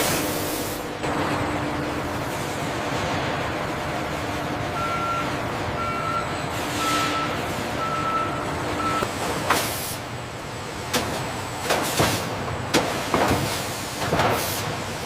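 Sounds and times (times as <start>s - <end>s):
engine and machinery noise: 0.0s - 15.0s
reversing alarm beeping: 4.7s - 9.1s.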